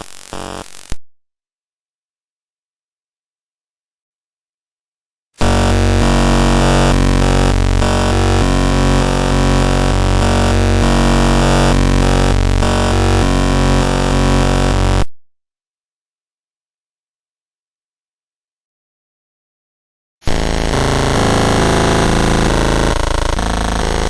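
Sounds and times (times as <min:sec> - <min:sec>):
harsh buzz of stacked tones: 0:00.0 - 0:00.8, 0:05.4 - 0:15.1, 0:20.2 - 0:24.0.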